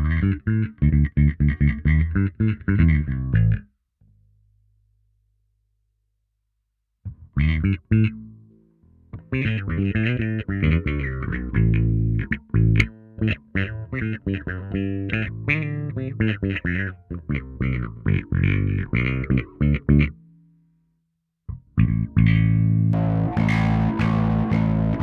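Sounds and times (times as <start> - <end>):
auto-wah electric bass notes: 0.0 - 3.7, 7.1 - 8.5, 9.1 - 20.2, 21.5 - 25.0.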